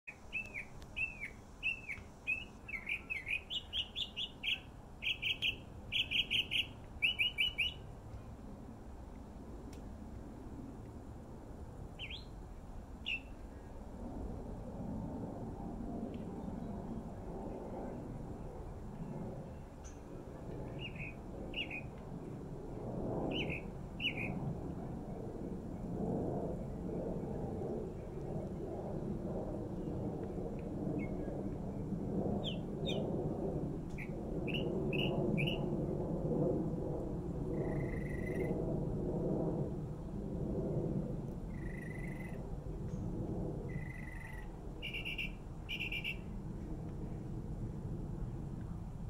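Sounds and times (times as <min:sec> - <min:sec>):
small bird chirping: 0:00.1 - 0:07.8, 0:12.0 - 0:12.3, 0:20.8 - 0:21.9, 0:23.3 - 0:24.4, 0:43.8 - 0:46.2
songbird singing: 0:00.1 - 0:07.9, 0:12.0 - 0:12.4, 0:13.0 - 0:13.6, 0:19.0 - 0:22.0, 0:23.3 - 0:24.4, 0:32.4 - 0:33.0, 0:33.9 - 0:35.7, 0:37.6 - 0:38.5, 0:41.5 - 0:43.0, 0:43.7 - 0:46.3
steady low rumble: 0:00.1 - 0:49.0.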